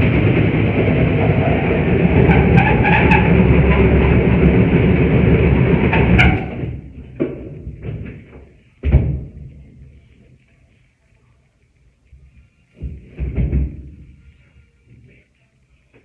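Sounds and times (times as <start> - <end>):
loud construction rumbling: 0.0 - 7.3.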